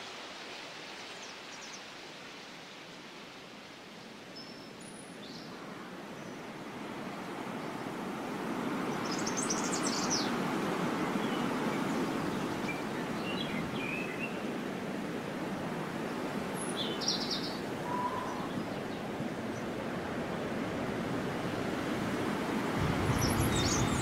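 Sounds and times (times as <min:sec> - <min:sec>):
birds chirping: 0:16.6 - 0:19.7, 0:22.8 - 0:24.0
steady rushing noise: 0:21.0 - 0:24.0.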